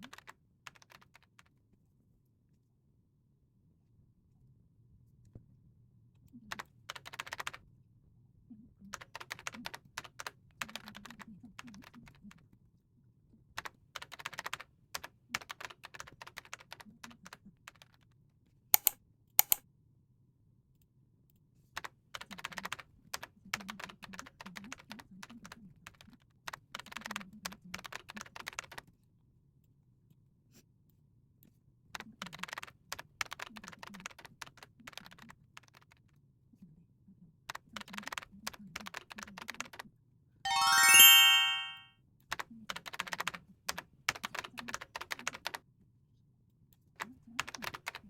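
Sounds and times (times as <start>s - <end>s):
typing on a keyboard: 0.0s - 1.5s, 6.4s - 7.6s, 8.9s - 12.4s, 13.6s - 18.1s, 18.8s - 19.6s, 21.8s - 28.9s, 32.0s - 36.0s, 37.5s - 39.8s, 42.3s - 45.6s, 47.0s - 48.0s.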